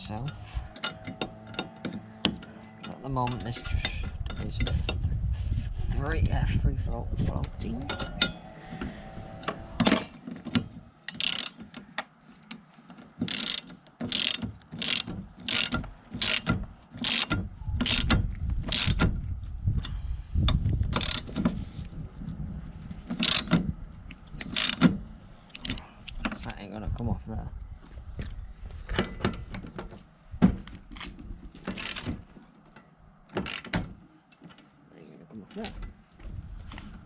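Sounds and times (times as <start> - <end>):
ratchet spanner clicking: 11.1 - 11.6, 13.2 - 19.0, 23.2 - 23.5.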